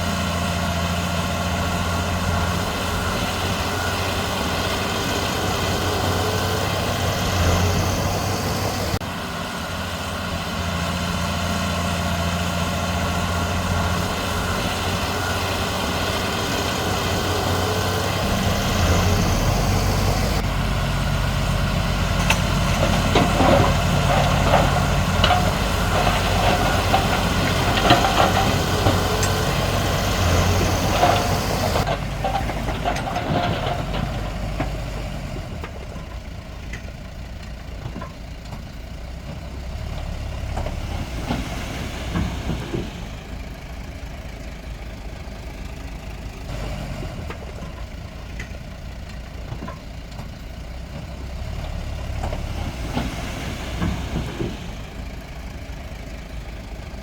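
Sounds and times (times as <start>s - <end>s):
heavy diesel engines running: 0.0s - 57.0s
metal clanks and knocks: 22.1s - 35.0s.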